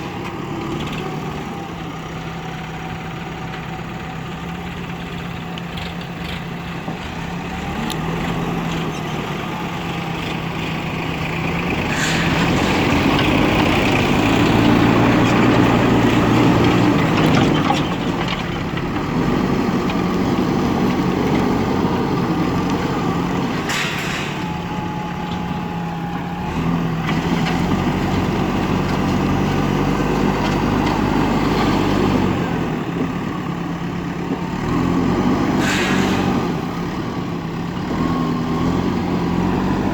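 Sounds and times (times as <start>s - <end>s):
diesel engine under load: 0.0s - 39.9s
short hisses: 11.9s - 12.6s, 35.6s - 36.5s.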